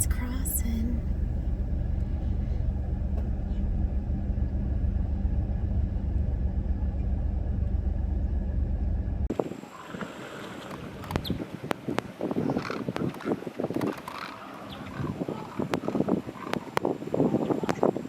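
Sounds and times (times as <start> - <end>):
van engine running: 0.0 - 9.3.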